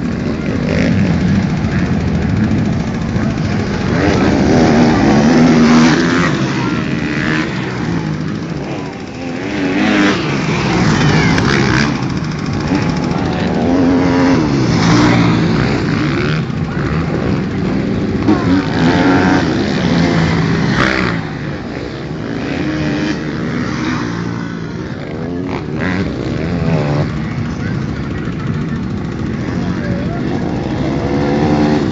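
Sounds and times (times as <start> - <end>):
motorcycles revving: 0.0 - 31.9.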